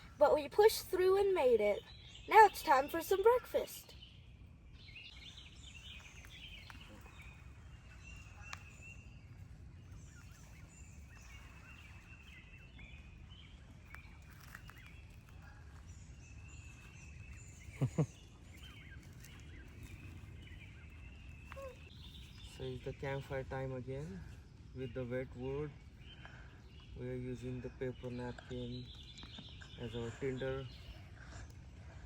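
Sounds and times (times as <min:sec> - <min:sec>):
faint birdsong chirps: 0:00.0 - 0:32.0.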